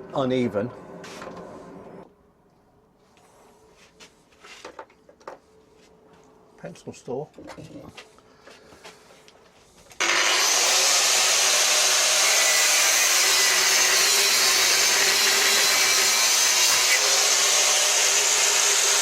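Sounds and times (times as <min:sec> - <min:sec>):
angle grinder cutting steel: 0:10.0 - 0:19.0.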